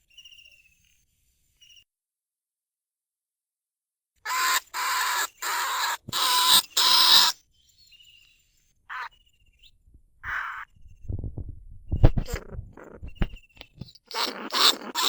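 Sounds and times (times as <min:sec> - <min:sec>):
rat giving raspy calls: 0:04.3 - 0:07.4, 0:08.9 - 0:09.2, 0:10.2 - 0:10.8, 0:12.1 - 0:15.0.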